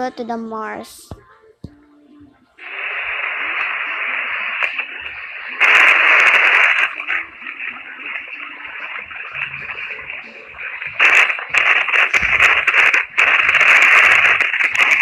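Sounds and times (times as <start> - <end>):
radio-like static hiss: 0.7 - 15.0
crackles: 2.6 - 15.0.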